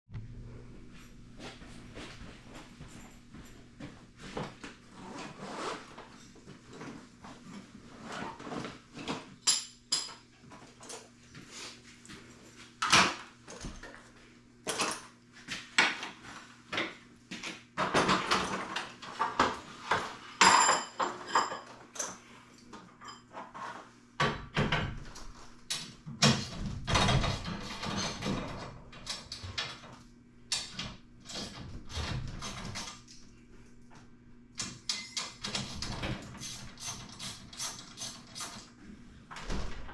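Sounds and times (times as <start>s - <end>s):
faint steady hum: 0.1s - 39.9s
metal tools clinking and clanking: 20.4s - 22.2s, 34.9s - 35.9s.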